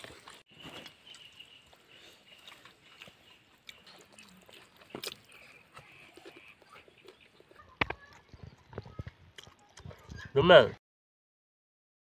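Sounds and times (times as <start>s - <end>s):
chewing and mouth sounds: 0.0s - 10.3s.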